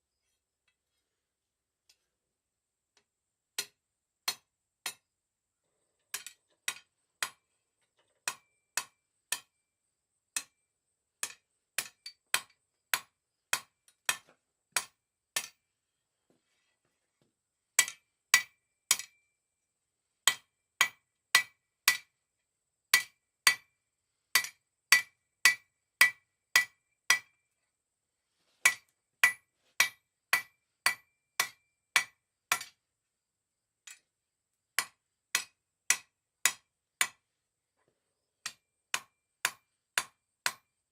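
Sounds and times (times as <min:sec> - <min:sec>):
hammer striking steel on anvil: 0:03.6 - 0:05.1, 0:08.2 - 0:09.6, 0:10.4 - 0:10.6, 0:11.2 - 0:14.2, 0:14.8 - 0:15.6, 0:17.8 - 0:19.2, 0:20.2 - 0:22.1, 0:22.9 - 0:23.7, 0:24.4 - 0:27.4, 0:28.6 - 0:32.8, 0:34.8 - 0:37.2, 0:38.4 - 0:40.7.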